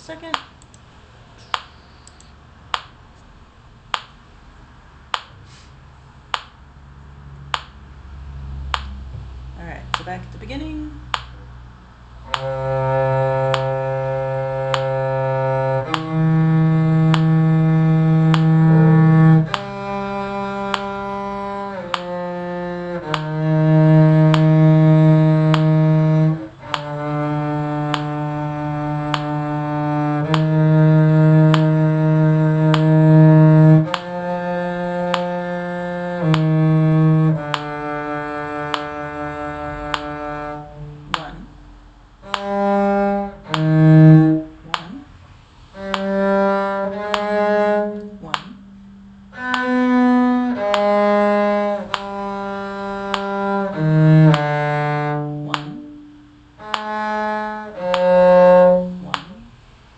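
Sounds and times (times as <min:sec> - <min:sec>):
metronome clicking: 0:01.4 - 0:02.9, 0:12.2 - 0:41.4, 0:42.2 - 0:45.0, 0:45.8 - 0:59.5
bowed string instrument melody: 0:06.6 - 0:59.9.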